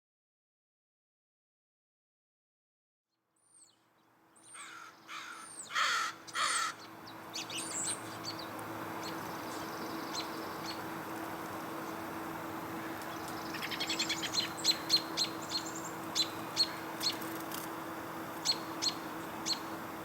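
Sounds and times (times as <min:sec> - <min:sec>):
small birds chirping: 0:03.5 - 0:19.8
bird cawing: 0:04.5 - 0:07.7.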